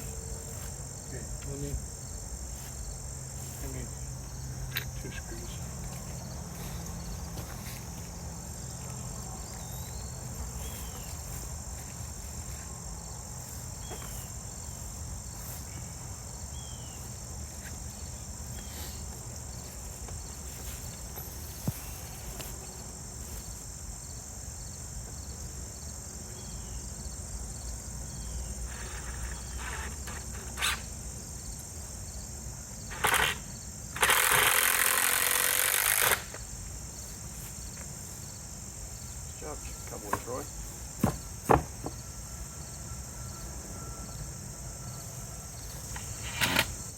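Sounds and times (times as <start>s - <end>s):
crickets and insects chorus: 0.0s - 46.9s
sharp knocks: 41.0s - 42.0s.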